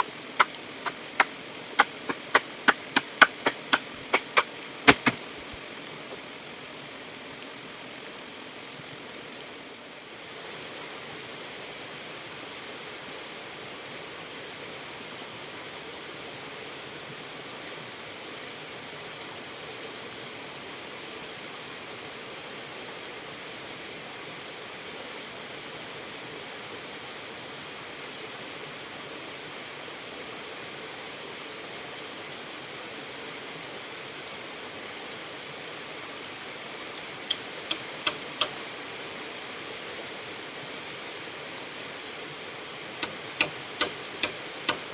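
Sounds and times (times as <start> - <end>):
sharp clicks: 0.0 - 5.6, 37.0 - 38.9, 43.0 - 44.9
running water hiss: 0.0 - 44.9.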